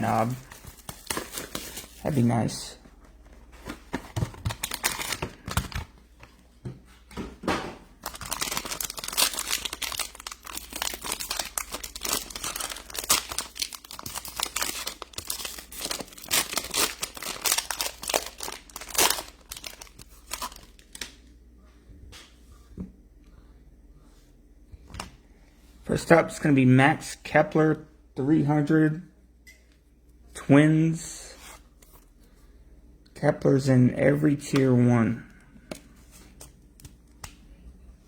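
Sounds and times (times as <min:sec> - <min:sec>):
plastic wrapping tearing and crinkling: 0:00.0 - 0:02.2, 0:04.4 - 0:05.8, 0:08.0 - 0:21.2.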